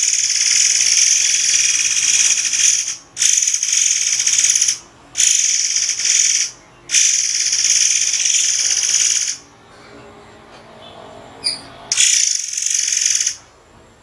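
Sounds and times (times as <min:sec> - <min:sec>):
forktail shrill rasping calls: 0:11.4 - 0:13.4.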